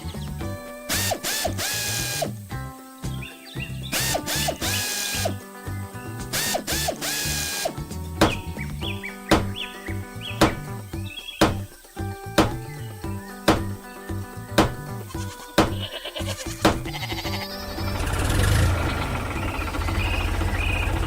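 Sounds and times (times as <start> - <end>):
background music: 0.0 - 19.4
hissing bursts: 0.9 - 2.5, 3.9 - 5.4, 6.3 - 8.5.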